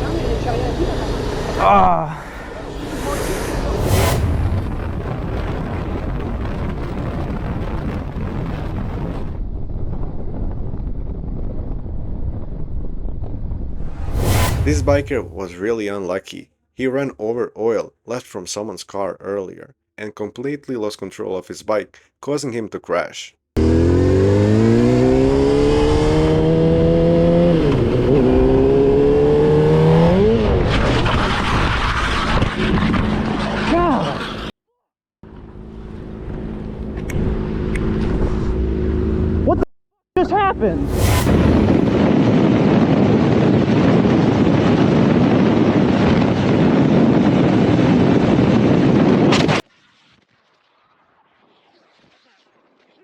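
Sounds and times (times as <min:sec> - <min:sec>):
motorcycle engine accelerating: 0:00.0 - 0:01.7, 0:23.6 - 0:34.5, 0:35.2 - 0:39.7
motorcycle scraping along ground: 0:02.4 - 0:05.6, 0:13.8 - 0:15.7, 0:23.6 - 0:34.5, 0:40.6 - 0:42.5
wind buffeting microphone: 0:40.6 - 0:49.4.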